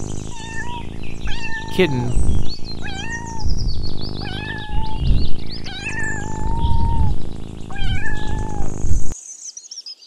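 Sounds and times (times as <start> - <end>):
kitten meowing: 0.3 - 2.2, 2.8 - 3.5, 7.7 - 8.6.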